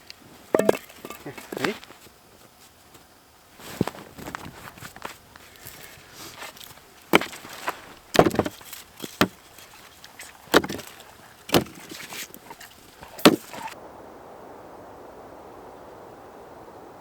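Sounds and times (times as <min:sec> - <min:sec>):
blade striking wood: 0:00.6 - 0:00.9, 0:07.1 - 0:13.8.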